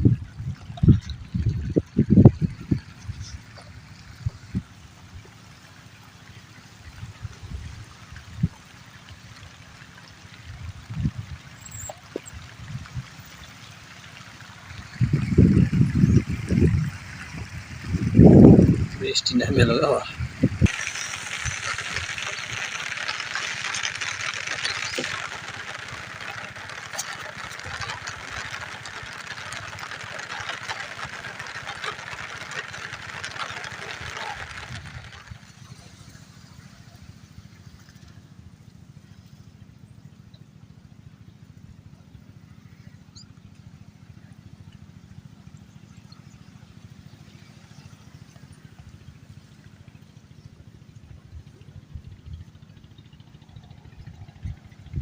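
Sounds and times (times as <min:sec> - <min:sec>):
water trickling and lapping: 0:00.0 - 0:41.5
small engine running: 0:00.0 - 0:55.0.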